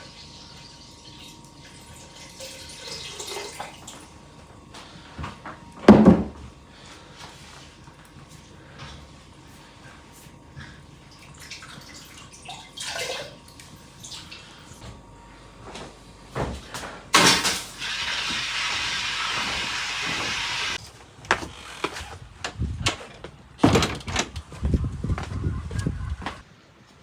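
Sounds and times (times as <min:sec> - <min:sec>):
water running: 0:00.0 - 0:04.4, 0:10.9 - 0:14.8, 0:17.2 - 0:20.8.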